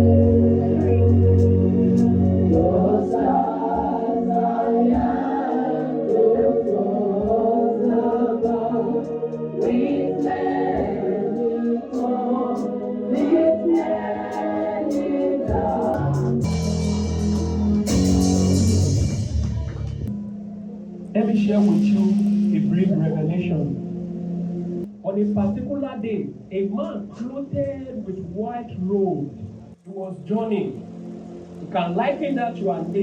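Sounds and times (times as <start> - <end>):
choir singing gospel song: 0.0 - 19.0
organ accompaniment: 0.0 - 27.6.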